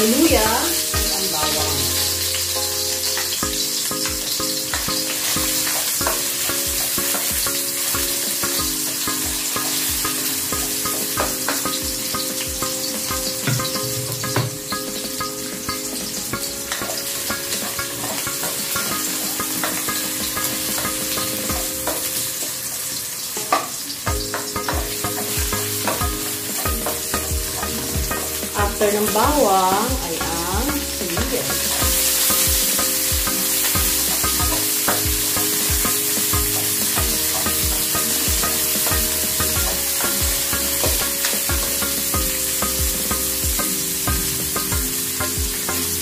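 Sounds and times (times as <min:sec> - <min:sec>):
garlic sizzling in hot oil: 0:00.0 - 0:46.0.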